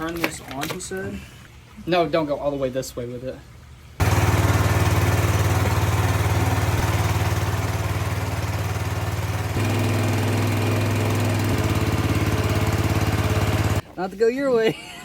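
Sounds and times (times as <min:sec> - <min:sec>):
small engine running: 0:04.0 - 0:13.8.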